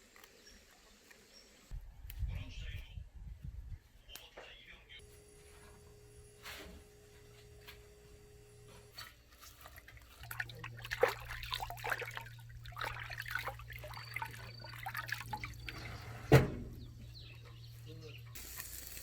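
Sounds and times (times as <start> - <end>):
water trickling and dripping: 9.0 - 16.2.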